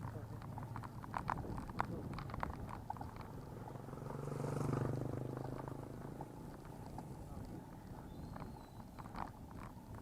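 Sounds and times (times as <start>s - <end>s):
motor vehicle passing by: 3.2s - 8.5s.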